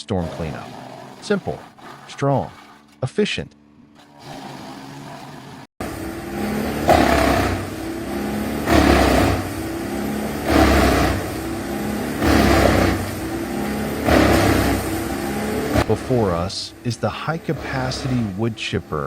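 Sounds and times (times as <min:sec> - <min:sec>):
wood grinding in chipper: 0:04.0 - 0:19.0
wood chipper engine humming: 0:05.8 - 0:19.0.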